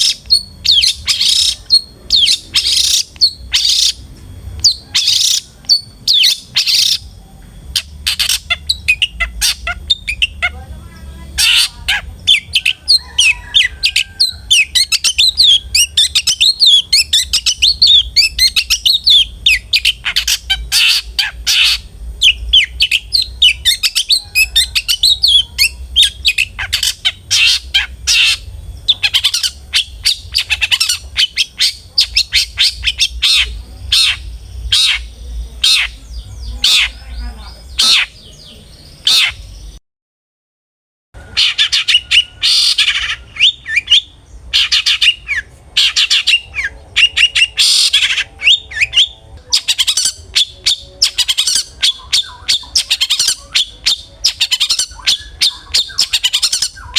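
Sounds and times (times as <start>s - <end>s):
bird chattering and squawking: 0.0s - 39.7s, 41.2s - 56.9s
faint low hum: 0.0s - 39.8s.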